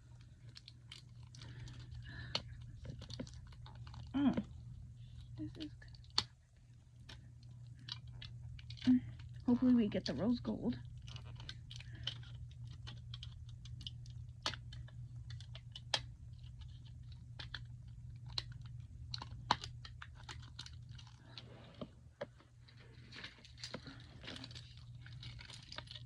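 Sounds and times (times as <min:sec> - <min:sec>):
plastic packaging crinkling: 0:00.0 - 0:21.9, 0:22.5 - 0:26.0
plastic packaging snaps: 0:10.9 - 0:21.4.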